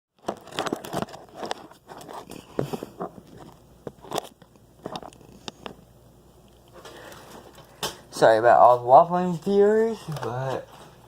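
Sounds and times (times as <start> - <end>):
objects knocking and clicking: 0.2 - 5.8.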